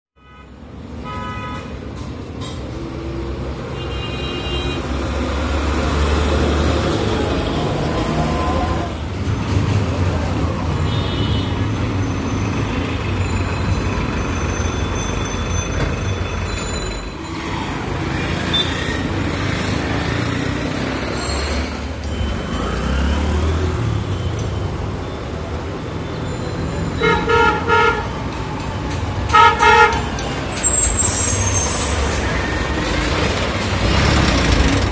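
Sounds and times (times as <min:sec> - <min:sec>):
car horns tooting: 0:00.2 - 0:01.8, 0:03.7 - 0:05.0, 0:10.8 - 0:11.8, 0:26.8 - 0:28.3, 0:29.2 - 0:31.4
truck engines rumbling: 0:00.5 - 0:34.9.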